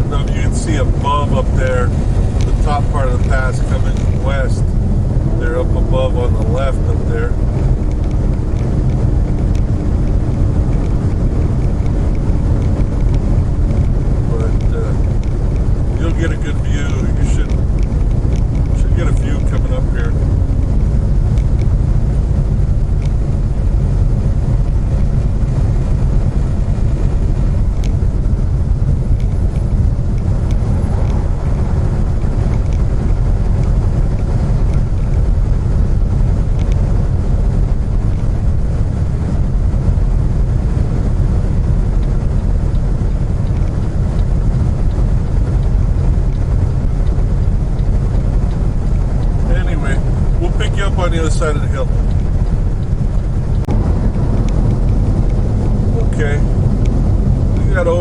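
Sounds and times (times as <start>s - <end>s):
diesel truck engine rumble: 0.0s - 58.0s
road noise: 0.0s - 58.0s.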